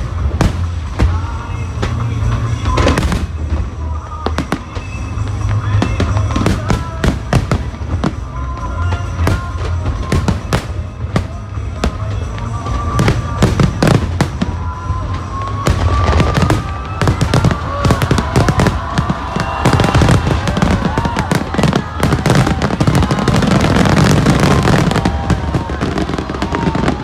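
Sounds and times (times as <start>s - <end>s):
fireworks bangs and crackling: 0.0s - 27.0s
firework rising whistle: 13.6s - 27.0s.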